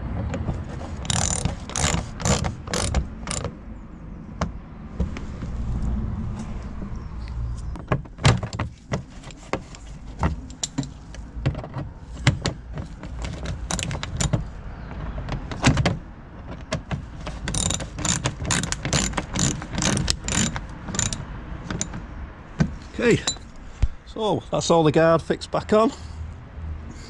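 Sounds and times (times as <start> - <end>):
rapid clicking: 0.9 - 3.5, 17.2 - 22.0
plastic panel clicks and knocks: 7.7 - 21.1.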